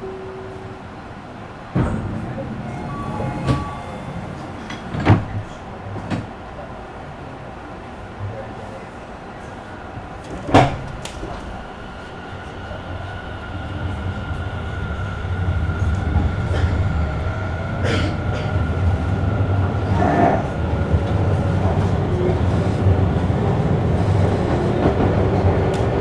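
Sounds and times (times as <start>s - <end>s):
train clunks: 0.0s - 7.4s, 9.5s - 26.0s
electric train running: 1.6s - 6.2s, 10.2s - 26.0s.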